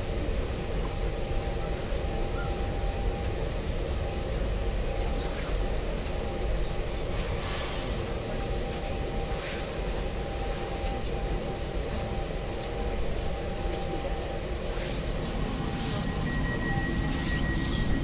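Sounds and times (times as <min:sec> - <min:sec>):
train wheels rumbling: 0:00.0 - 0:18.0
thin high whine: 0:14.7 - 0:18.0.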